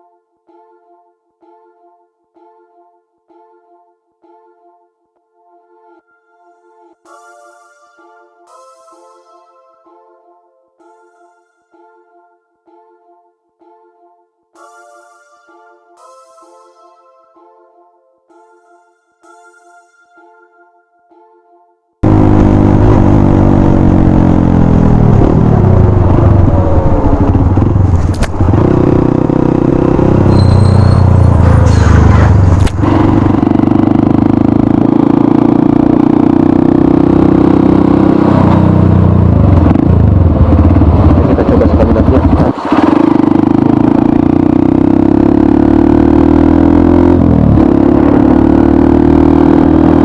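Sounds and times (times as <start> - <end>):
motorcycle engine revving: 22.0 - 50.0.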